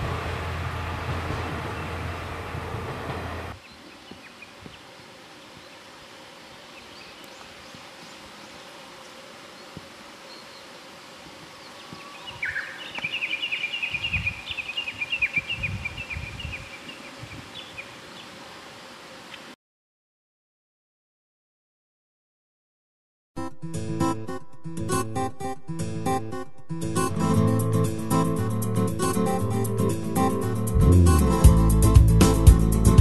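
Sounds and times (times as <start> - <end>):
rumble: 0.0 - 3.6, 30.7 - 32.2
songbird chattering song: 3.6 - 5.9, 6.5 - 10.8, 11.5 - 18.4.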